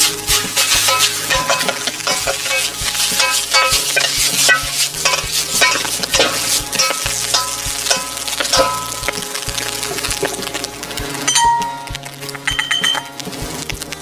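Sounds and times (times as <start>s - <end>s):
utensil scraping and knocking pan: 0.0s - 9.4s
rice sizzling in a pan: 0.0s - 14.0s.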